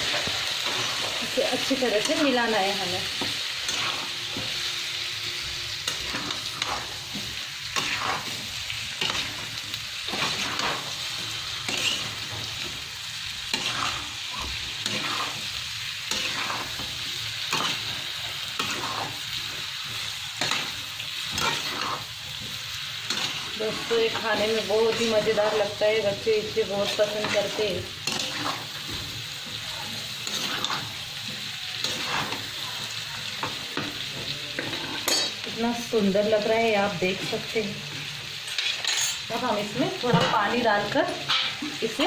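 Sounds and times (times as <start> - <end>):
food sizzling in a pan: 0.0 - 42.0
spoon scraping a pan: 3.1 - 4.6, 5.8 - 12.8, 13.4 - 29.1, 30.1 - 32.6, 33.4 - 35.6, 38.5 - 39.3.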